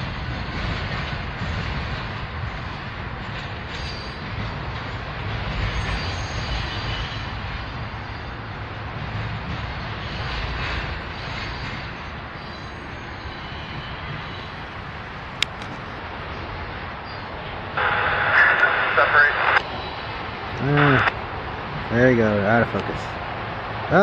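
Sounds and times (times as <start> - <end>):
steel wheels rumbling on rails: 0.0 - 24.0
rushing noise: 5.3 - 24.0.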